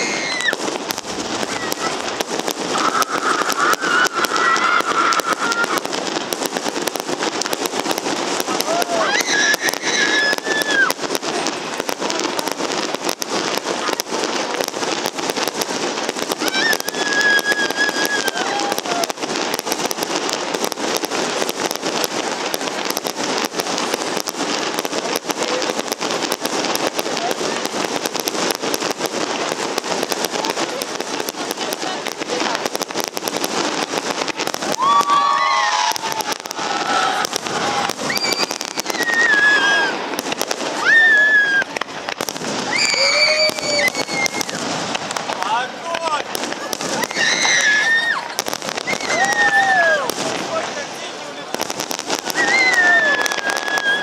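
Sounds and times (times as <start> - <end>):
fireworks crackling and banging: 0.0 - 54.0
onlookers calling out: 1.4 - 5.9, 8.4 - 11.6, 16.4 - 19.5, 34.4 - 40.1, 40.8 - 44.6, 45.4 - 51.5, 52.1 - 54.0.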